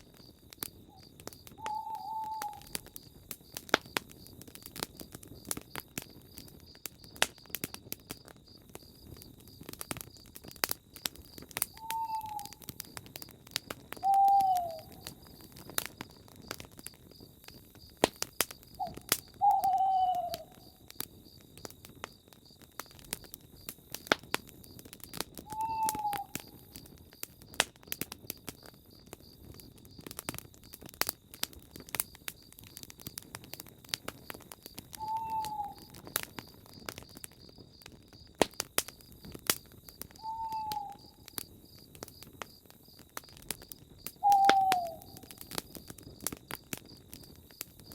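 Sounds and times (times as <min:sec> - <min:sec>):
campfire crackling and popping: 0:00.0 - 0:47.9
night bird hooting: 0:00.9 - 0:03.0, 0:11.7 - 0:12.8, 0:14.0 - 0:15.2, 0:18.7 - 0:20.8, 0:25.5 - 0:26.8, 0:34.9 - 0:36.1, 0:40.2 - 0:41.3, 0:44.2 - 0:45.4
high insect trill: 0:14.0 - 0:22.6.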